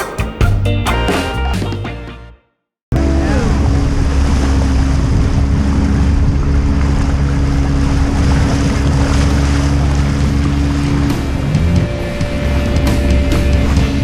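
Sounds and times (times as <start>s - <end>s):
water rushing along hull: 3.0s - 14.0s
wind buffeting microphone: 3.1s - 14.0s.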